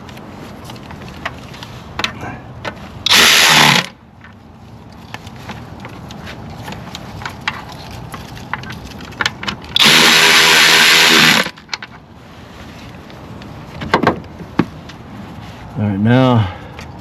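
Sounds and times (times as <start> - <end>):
power tool motor whine: 3.1 - 3.9, 9.8 - 11.5.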